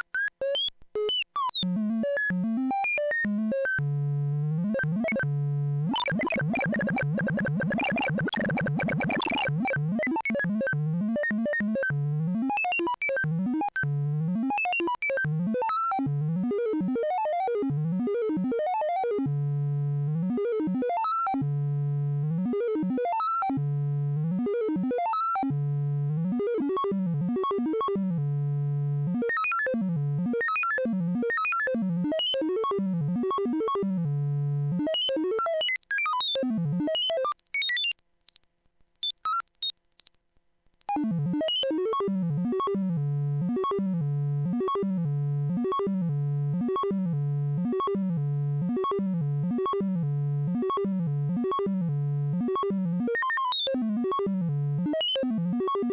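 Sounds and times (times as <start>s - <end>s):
high chirping synth blips: 6.0s - 10.4s.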